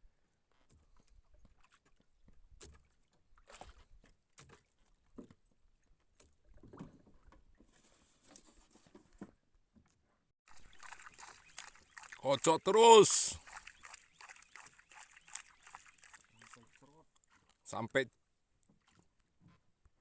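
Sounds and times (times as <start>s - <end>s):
water lapping at a boat: 0.5s - 8.2s, 10.5s - 17.8s, 18.6s - 19.2s.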